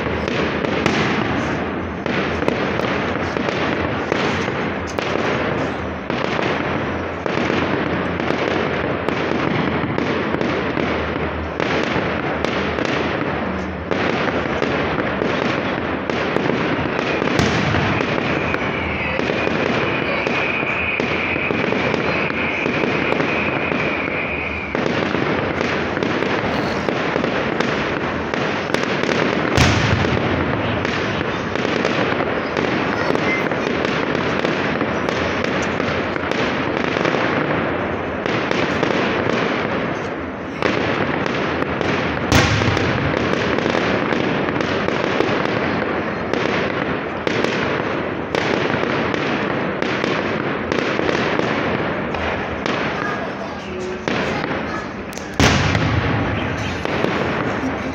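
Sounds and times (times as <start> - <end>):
fireworks bangs: 0.0 - 57.9
fireworks crackling: 0.0 - 57.9
steady high whistle: 17.8 - 25.0.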